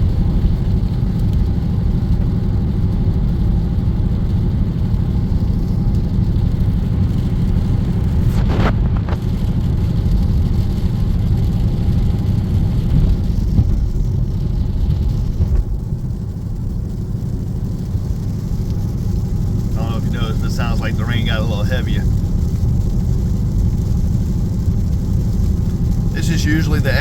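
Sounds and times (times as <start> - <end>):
car engine and tyres droning: 0.0 - 27.0.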